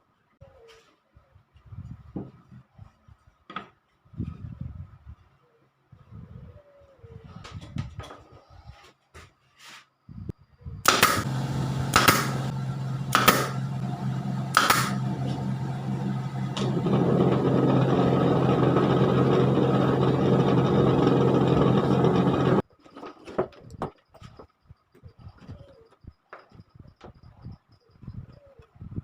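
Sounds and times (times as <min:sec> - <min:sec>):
electric power tool running: 0:10.9 - 0:22.6.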